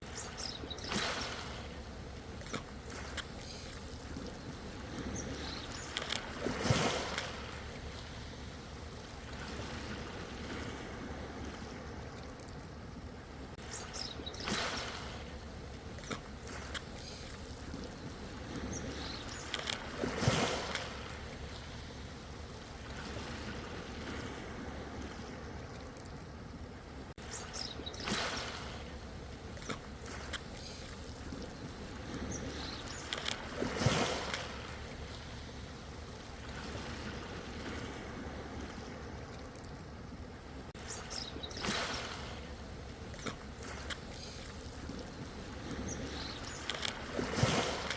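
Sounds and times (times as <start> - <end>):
waves breaking: 0.0 - 47.9
waves washing on shore: 0.0 - 47.9.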